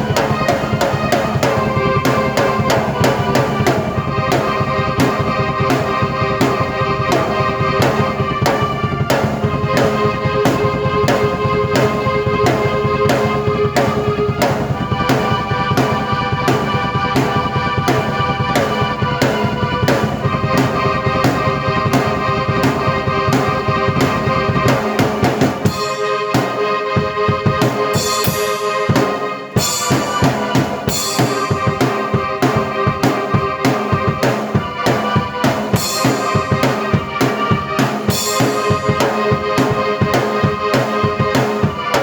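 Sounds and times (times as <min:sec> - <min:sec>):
drum kit: 0:00.0 - 0:42.0
keyboard chords: 0:00.0 - 0:42.0
cymbals: 0:24.8 - 0:26.8, 0:27.6 - 0:42.0.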